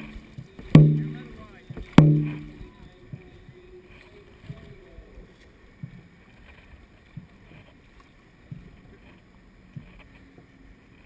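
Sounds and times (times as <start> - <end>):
soft low thumps: 0.0 - 3.6
faint wind: 0.0 - 11.0.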